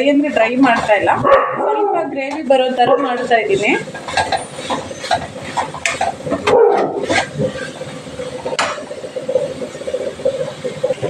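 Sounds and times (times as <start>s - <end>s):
dog barking: 1.2s - 2.0s, 6.4s - 7.0s.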